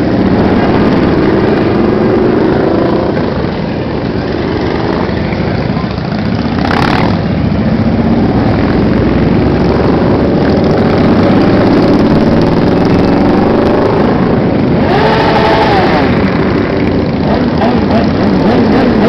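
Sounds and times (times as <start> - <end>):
motorcycles riding past: 0.0 - 19.0.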